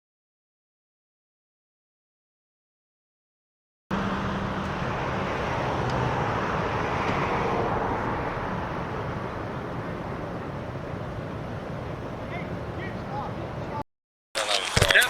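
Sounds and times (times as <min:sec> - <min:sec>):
faint low engine hum: 0:03.9 - 0:13.8
traffic roar: 0:03.9 - 0:13.8.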